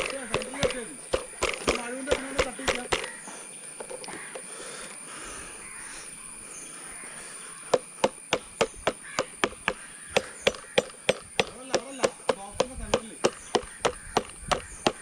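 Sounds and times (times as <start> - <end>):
blade chopping into wood: 0.0 - 3.2, 7.7 - 15.0
crows cawing: 0.0 - 15.0.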